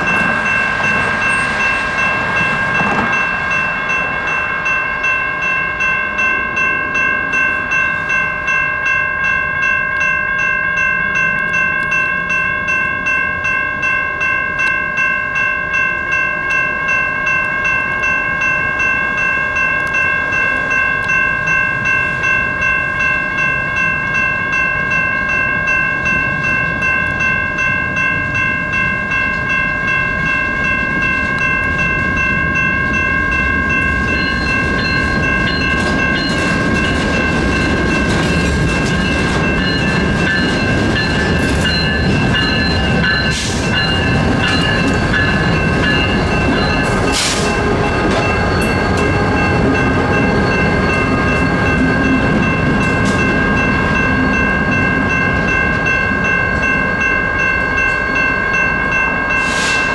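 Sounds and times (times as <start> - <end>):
freight train rumbling past: 0.0 - 9.8, 16.1 - 59.9
crossing warning bells ringing: 0.0 - 59.9
sharp metallic noises: 30.6 - 59.9.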